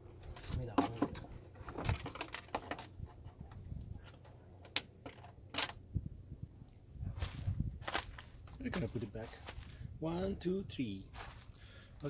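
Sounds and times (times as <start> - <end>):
plastic parts clicking and knocking: 0.3 - 3.0, 4.0 - 5.8.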